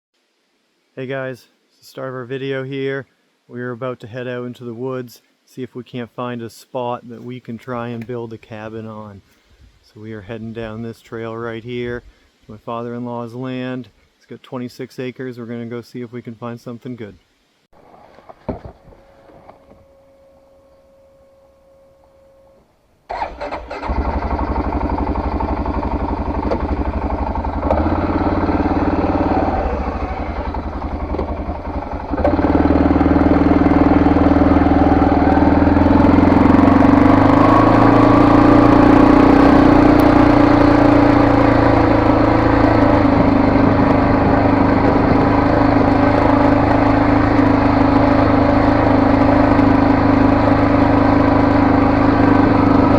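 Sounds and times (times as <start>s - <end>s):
faint steady tone: 18.8s - 23.0s
vehicle engine starting and idling: 23.1s - 52.9s.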